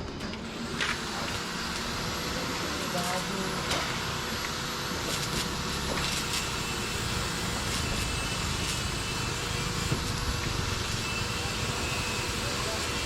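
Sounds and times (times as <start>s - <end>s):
welding arc crackling hiss: 0.4s - 13.0s.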